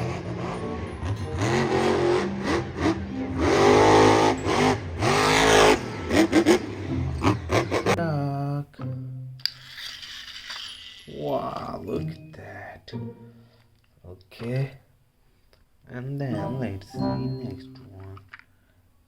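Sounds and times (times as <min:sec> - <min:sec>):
car engine revving: 0:00.0 - 0:08.0
background music: 0:00.0 - 0:09.6, 0:11.3 - 0:14.1, 0:16.2 - 0:18.2.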